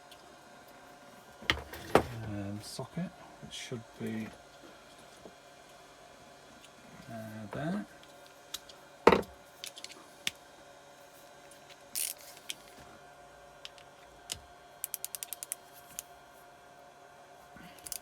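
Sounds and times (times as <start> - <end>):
ratchet clicking: 14.8 - 16.0.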